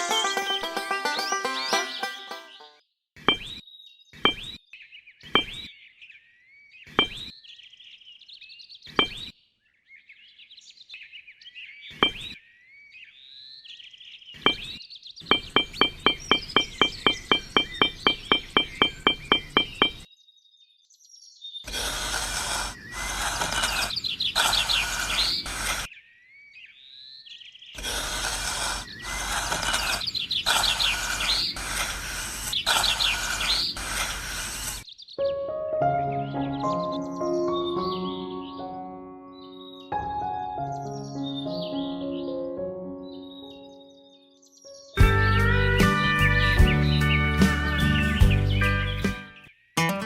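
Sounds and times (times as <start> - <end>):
birds chirping: 0.0 - 35.4, 36.0 - 50.0
hammer tapping nails into wood: 15.3 - 20.1.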